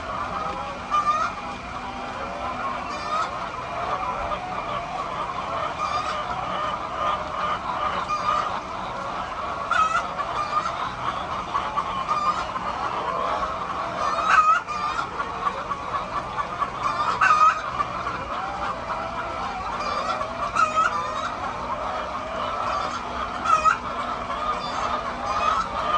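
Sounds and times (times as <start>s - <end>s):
chickens clucking: 0.0s - 25.9s.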